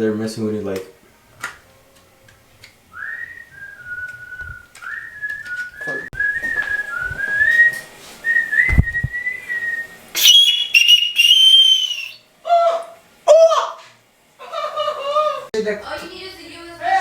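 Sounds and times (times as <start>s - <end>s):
person whistling a tune: 2.9s - 12.2s
dull thumps: 3.8s - 7.7s, 8.5s - 9.2s.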